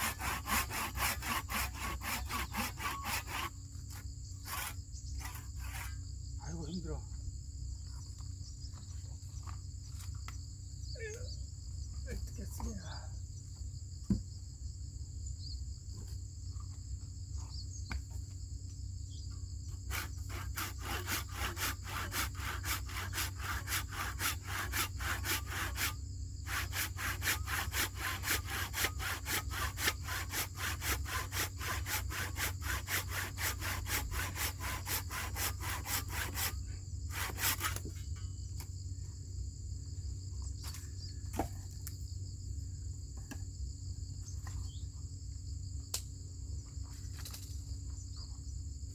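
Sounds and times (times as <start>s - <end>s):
hand saw cutting wood: 0.0s - 6.0s, 19.9s - 38.3s
insects chirring: 0.0s - 48.9s.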